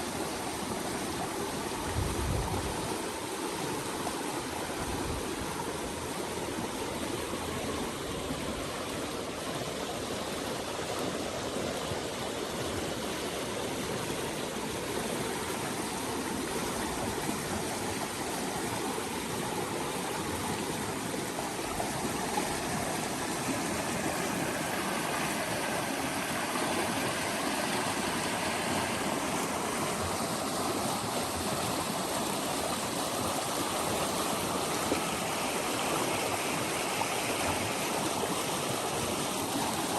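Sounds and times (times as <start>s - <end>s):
stream water flowing and splashing: 0.0s - 39.9s.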